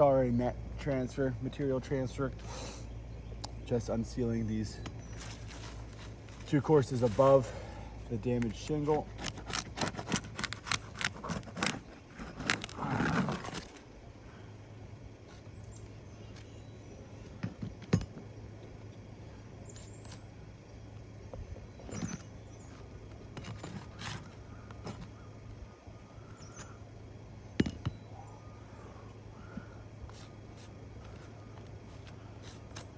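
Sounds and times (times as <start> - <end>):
shingles scraping and crackling: 5.1 - 7.6, 8.5 - 13.9, 21.7 - 25.2.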